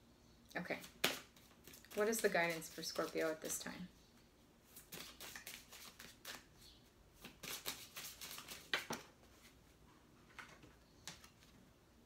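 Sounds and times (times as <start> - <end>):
cards being shuffled: 0.8 - 3.6, 4.7 - 6.5, 7.2 - 9.1.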